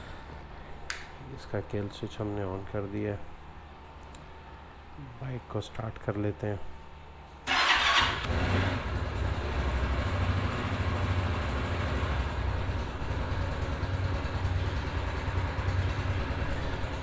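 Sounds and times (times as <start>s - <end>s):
motorcycle engine idling: 7.5s - 17.0s.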